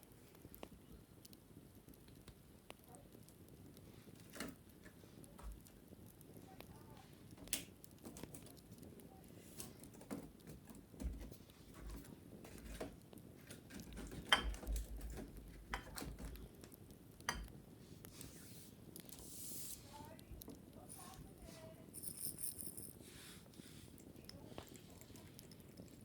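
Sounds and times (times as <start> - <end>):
taps and scratches on wicker: 7.3 - 17.3.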